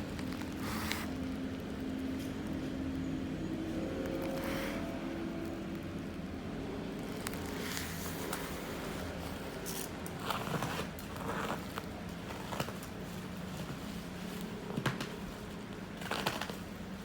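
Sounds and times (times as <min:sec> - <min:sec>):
packaging scraping and rustling: 0:00.0 - 0:01.4, 0:06.8 - 0:17.0
steady low hum: 0:00.0 - 0:10.0.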